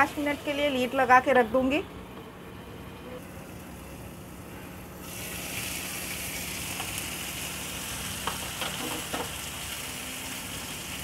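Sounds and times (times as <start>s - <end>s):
chicken sizzling in a pan: 5.0s - 11.0s.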